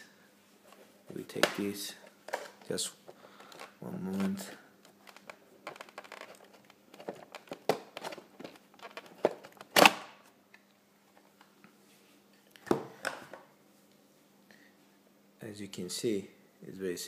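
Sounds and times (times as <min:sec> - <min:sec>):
plastic part rustling and crinkling: 0:00.6 - 0:10.1.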